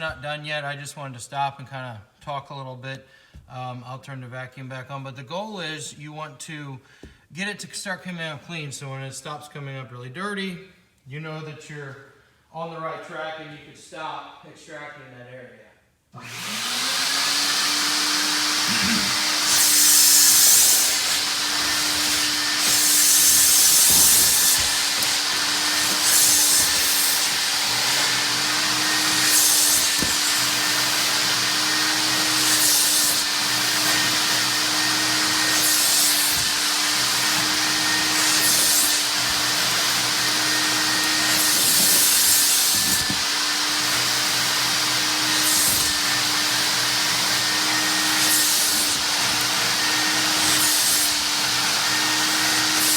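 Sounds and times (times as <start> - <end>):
carpet extractor motor humming: 16.2 - 52.9
extraction wand hissing: 18.6 - 31.2.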